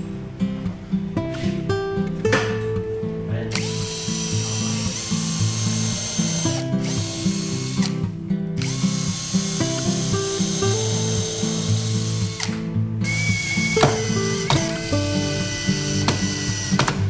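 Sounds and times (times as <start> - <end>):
background music: 0.0 - 17.0
power tool whining: 3.5 - 17.0.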